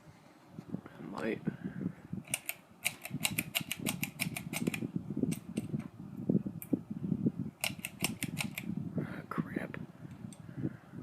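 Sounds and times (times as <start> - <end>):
sharp clicks and ticks from fixture: 2.3 - 5.7, 7.6 - 8.7.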